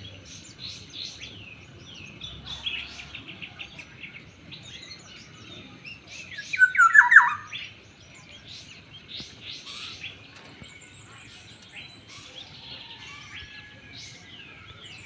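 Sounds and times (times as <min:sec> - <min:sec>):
small birds chirping and trilling: 0:00.0 - 0:15.0
bird harsh call: 0:06.4 - 0:07.6.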